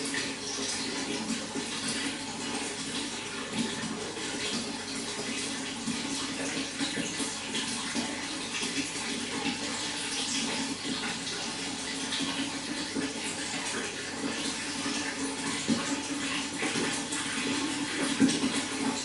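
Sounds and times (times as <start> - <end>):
running water: 0.0 - 19.0.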